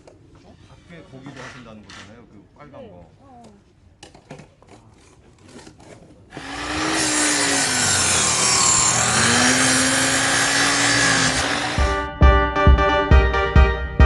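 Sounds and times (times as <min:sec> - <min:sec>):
power saw cutting: 0:06.3 - 0:12.0.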